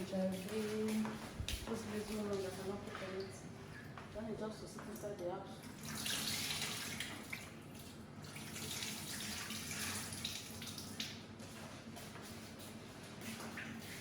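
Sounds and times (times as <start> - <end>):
tap water splashing into sink: 5.7 - 11.2.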